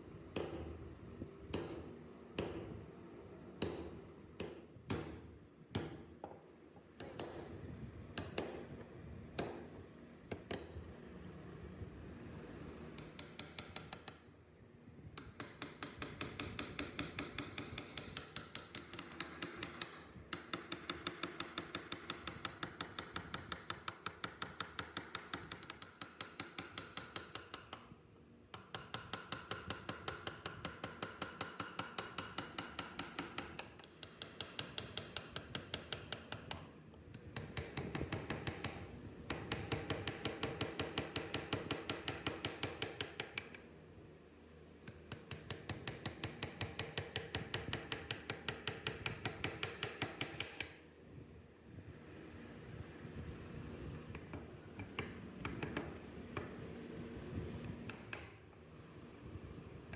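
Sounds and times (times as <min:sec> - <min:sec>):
mallet tapping chisel into wood: 0:00.4 - 0:00.7, 0:01.5 - 0:02.7, 0:03.6 - 0:06.4, 0:07.0 - 0:07.6, 0:08.2 - 0:10.8, 0:13.0 - 0:14.2, 0:15.2 - 0:27.8, 0:28.5 - 0:36.7, 0:37.3 - 0:43.6, 0:44.9 - 0:50.8, 0:54.1 - 0:56.6, 0:57.6 - 0:58.4.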